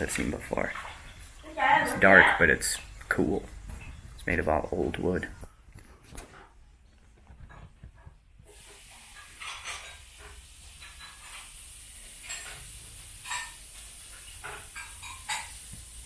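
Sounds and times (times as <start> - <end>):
steady hiss: 8.4 - 16.0.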